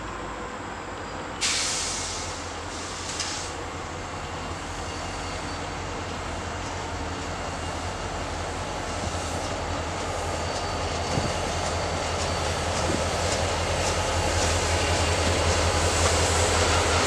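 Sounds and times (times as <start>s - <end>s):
train rumbling: 0.0s - 17.0s
loud hiss: 1.4s - 3.6s.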